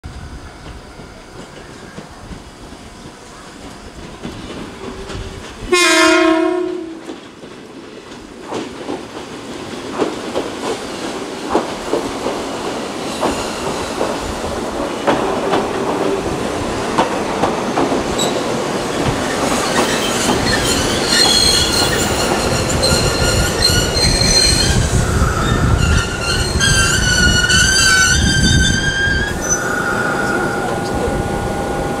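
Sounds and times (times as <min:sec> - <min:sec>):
train horn: 0:05.7 - 0:07.2
high wavering brake squeal: 0:19.7 - 0:32.0.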